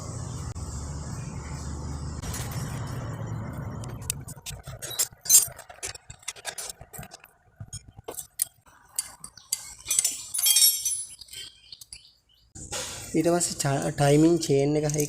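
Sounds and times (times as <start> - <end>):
small metal parts clinking: 4.4 - 12.1, 14.7 - 15.0.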